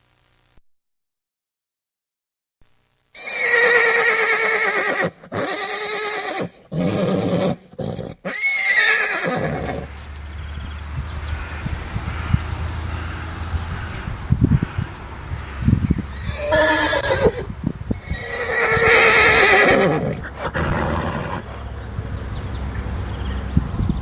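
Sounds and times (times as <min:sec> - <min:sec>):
horses neighing: 0:03.2 - 0:10.0, 0:13.8 - 0:21.9.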